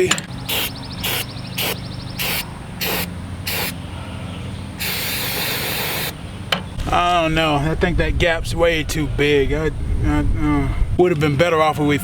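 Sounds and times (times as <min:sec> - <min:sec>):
aerosol can spraying: 0:00.5 - 0:03.7, 0:04.8 - 0:06.1.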